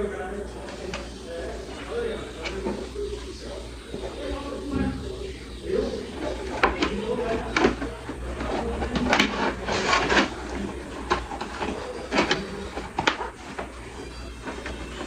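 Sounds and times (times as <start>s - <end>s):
rustling and clattering: 6.2s - 15.0s.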